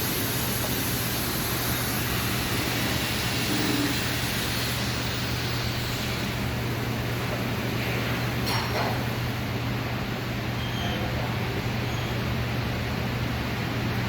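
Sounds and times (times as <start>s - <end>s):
steady hiss: 0.0s - 7.2s.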